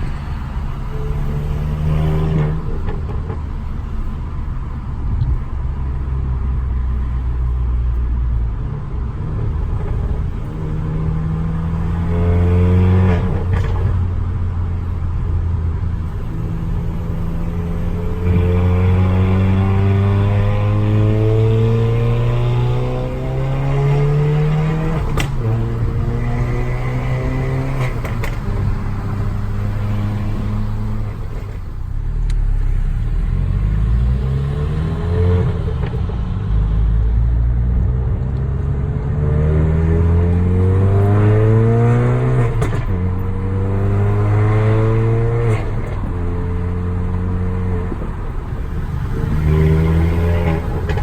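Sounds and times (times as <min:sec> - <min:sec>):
car engine accelerating through gears: 0:00.0 - 0:51.0
exhaust pops: 0:13.1 - 0:14.4, 0:24.5 - 0:33.7, 0:45.4 - 0:51.0.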